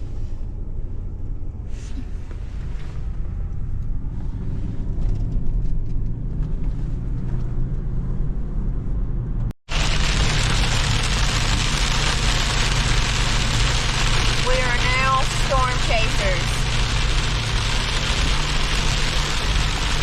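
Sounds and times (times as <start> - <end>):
car interior road rumble: 0.0 - 20.0
loud even hiss: 9.7 - 20.0.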